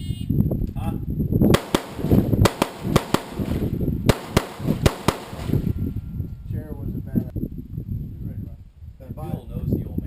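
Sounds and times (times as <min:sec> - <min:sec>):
wind rumble on microphone: 0:00.0 - 0:10.0
rifle gunshots: 0:01.5 - 0:05.7.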